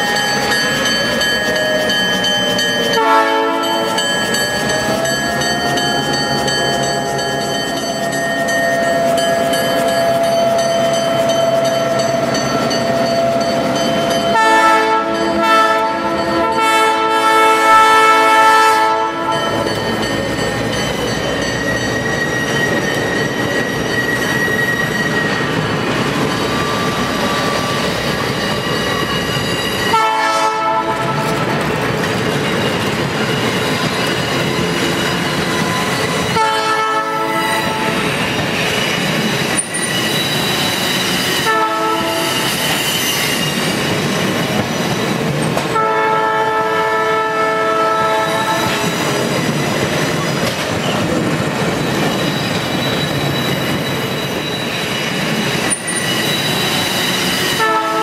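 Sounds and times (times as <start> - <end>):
train cars rumbling past: 0.0 - 58.0
locomotive air horn blasts: 3.0 - 4.0, 14.3 - 19.6, 29.9 - 31.4, 36.3 - 38.0, 41.4 - 42.5, 45.8 - 48.9, 57.6 - 58.0.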